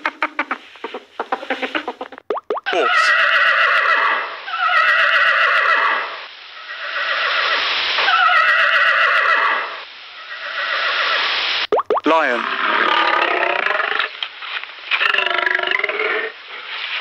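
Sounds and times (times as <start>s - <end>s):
horse neighing: 2.7s - 6.0s.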